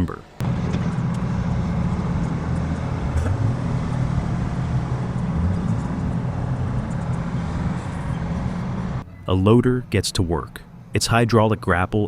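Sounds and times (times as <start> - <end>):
heavy engine droning: 0.4 - 9.2.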